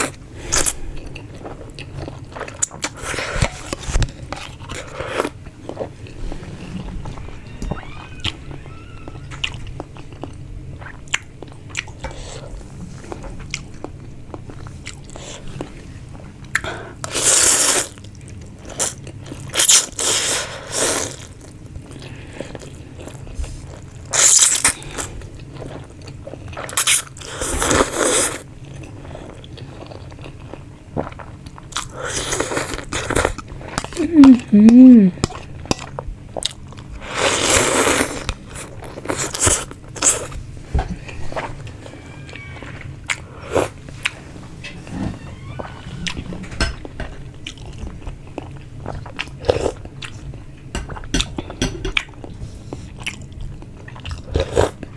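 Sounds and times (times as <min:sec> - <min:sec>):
chewing: 0:00.0 - 0:07.4, 0:08.2 - 0:34.5, 0:46.0 - 0:54.9
person humming mmm: 0:34.0 - 0:35.2.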